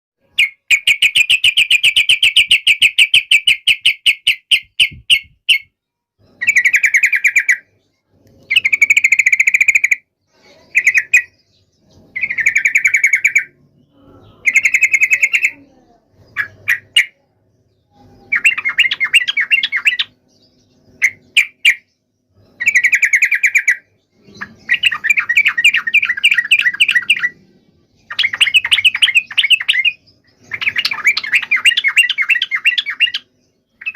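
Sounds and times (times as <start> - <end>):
bulbul chattering calls: 12.1 - 17.2, 18.2 - 20.2, 22.6 - 27.4, 28.0 - 33.9.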